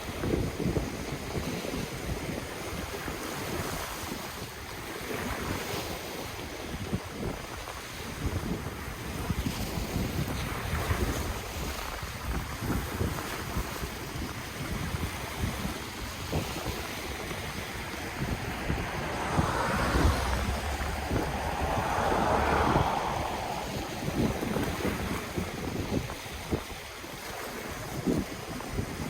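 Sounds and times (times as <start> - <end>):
wind buffeting microphone: 0.0 - 29.0
ocean waves breaking: 11.5 - 29.0.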